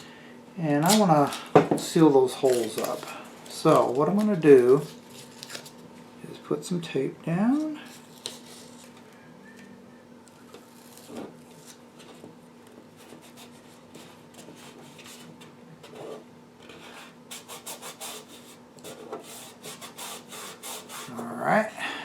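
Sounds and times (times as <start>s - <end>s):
faint steady hum: 0.0s - 22.0s
hand rubbing tape: 16.0s - 21.3s.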